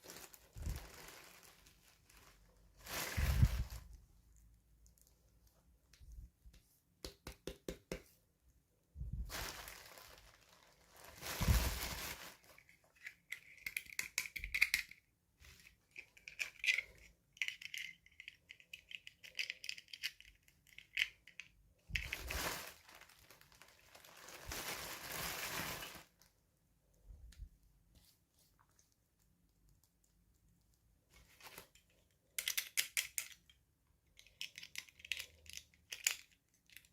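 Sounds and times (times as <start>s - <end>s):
plastic and paper crinkling: 0.0s - 4.0s, 9.1s - 13.6s, 21.9s - 26.3s, 31.1s - 32.1s.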